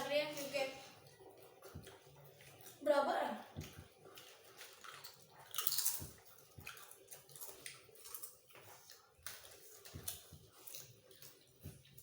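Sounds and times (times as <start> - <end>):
potato chips crunched by mouth: 4.6 - 10.9.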